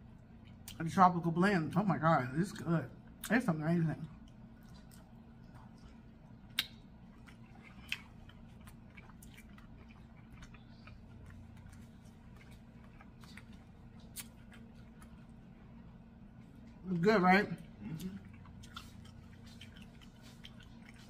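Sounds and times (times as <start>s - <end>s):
close chewing: 0.0s - 21.0s
steady low hum: 0.0s - 21.0s
wet mouth clicks: 6.5s - 15.2s.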